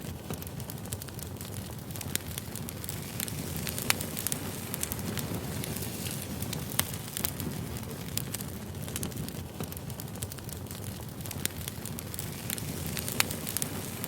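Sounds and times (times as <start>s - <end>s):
firewood crackling and popping: 0.0s - 14.0s.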